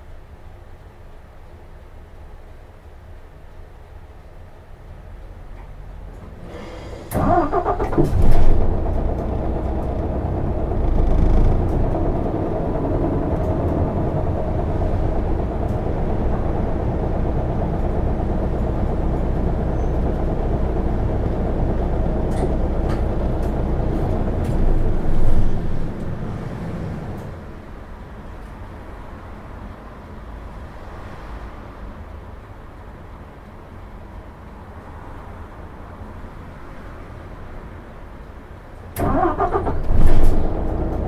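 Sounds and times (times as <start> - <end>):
diesel engine running: 4.9 - 29.3, 39.0 - 41.0
starter motor cranking: 7.1 - 27.2, 39.0 - 41.0.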